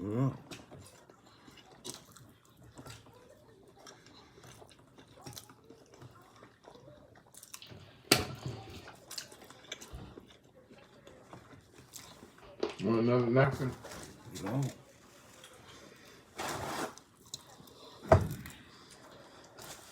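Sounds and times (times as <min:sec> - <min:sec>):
chewing and biting: 0:00.4 - 0:12.4, 0:17.0 - 0:19.9.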